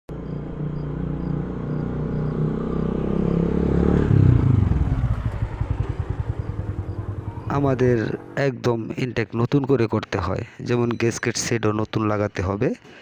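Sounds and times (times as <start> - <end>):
motorcycle engine running: 0.1 - 8.4.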